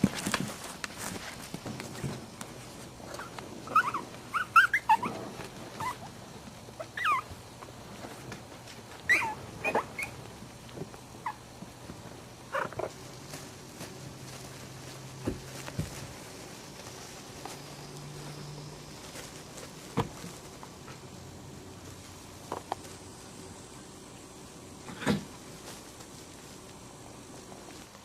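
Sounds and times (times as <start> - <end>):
faint steady hum: 0.0 - 28.0
puppies squeaking and whimpering: 3.1 - 6.1, 6.8 - 7.4, 9.1 - 10.2.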